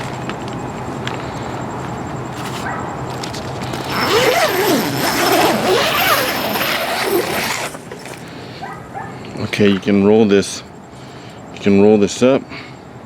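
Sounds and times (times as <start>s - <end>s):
tent zipper being pulled: 3.6s - 8.3s.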